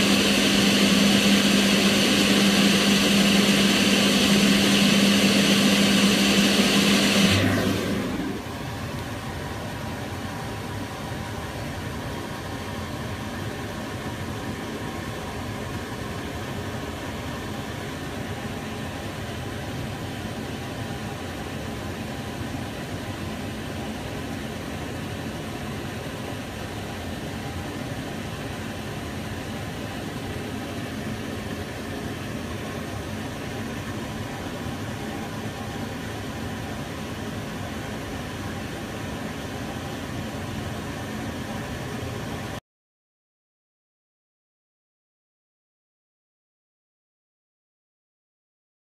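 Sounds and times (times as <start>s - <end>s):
extractor fan whoosh: 0.0s - 8.6s.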